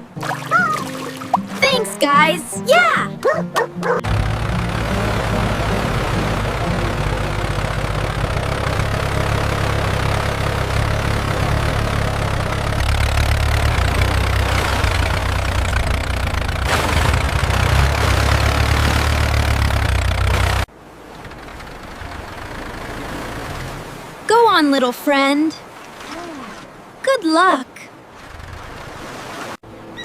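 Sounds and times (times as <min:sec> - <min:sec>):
heavy engine idling: 0:03.9 - 0:23.7.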